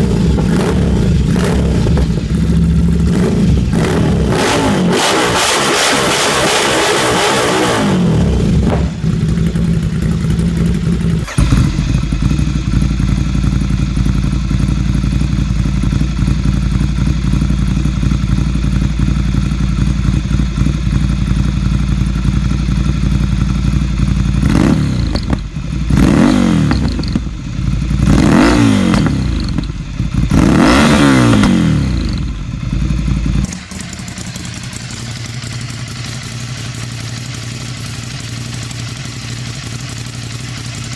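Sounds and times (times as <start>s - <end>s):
motorcycle engine idling: 0.0s - 40.9s
motorcycle engine revving: 0.0s - 40.9s.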